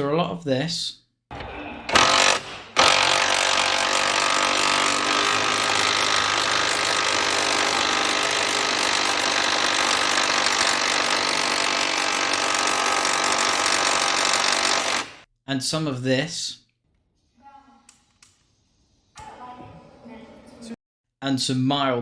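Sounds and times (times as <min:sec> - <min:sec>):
power tool rattling: 0:01.9 - 0:15.2.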